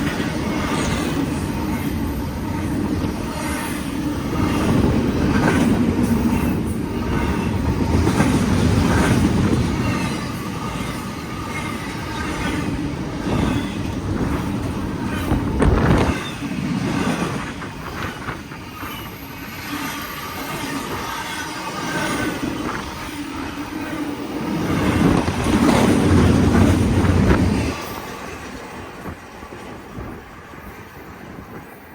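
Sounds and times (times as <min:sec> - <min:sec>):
wheels rumbling on rail: 0:00.0 - 0:31.9
high wheel squeal: 0:09.7 - 0:14.0, 0:15.0 - 0:25.2.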